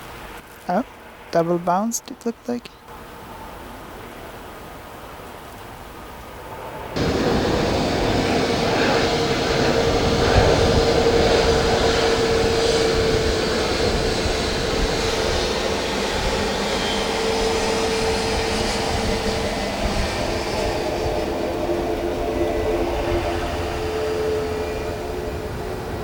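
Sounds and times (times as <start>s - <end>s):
jet engines running: 6.0s - 26.0s.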